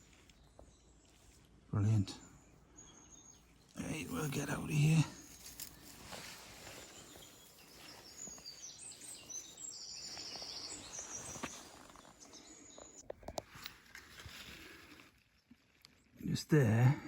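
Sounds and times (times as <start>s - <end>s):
small birds calling: 0.0s - 13.1s
rustling through vegetation: 3.6s - 15.9s.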